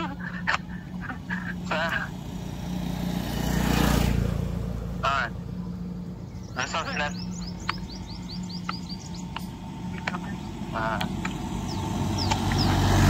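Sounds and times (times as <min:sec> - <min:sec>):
low engine hum: 0:00.0 - 0:13.0
vehicle approaching: 0:00.0 - 0:13.0
bird chirping: 0:04.6 - 0:13.0.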